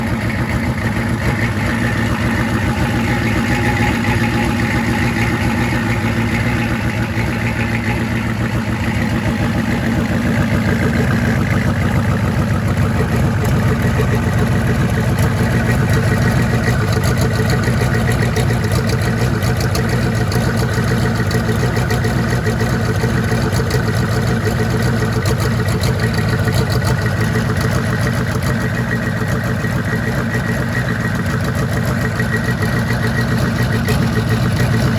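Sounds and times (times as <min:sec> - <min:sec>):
engine idling: 0:00.0 - 0:34.9.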